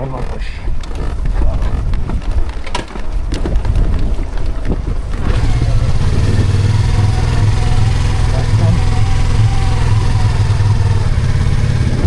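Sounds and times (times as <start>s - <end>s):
motorcycle rolling and rattling: 0.0s - 12.0s
motorcycle engine running: 3.4s - 12.0s.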